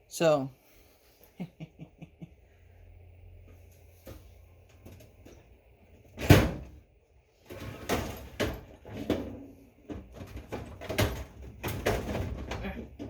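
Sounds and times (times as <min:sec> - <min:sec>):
hardware rattling and clanking: 0:07.4 - 0:13.0.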